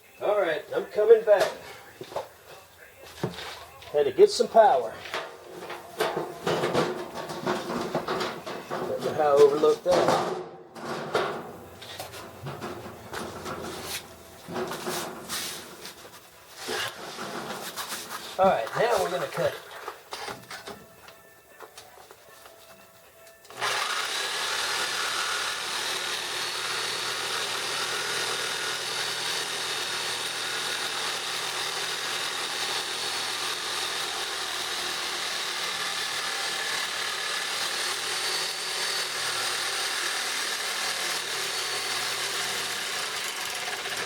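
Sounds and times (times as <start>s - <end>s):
reciprocating saw cutting metal: 23.5s - 44.0s.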